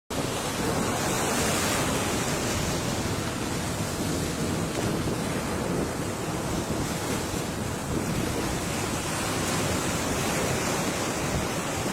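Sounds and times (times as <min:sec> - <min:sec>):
ocean waves breaking: 0:00.1 - 0:11.9.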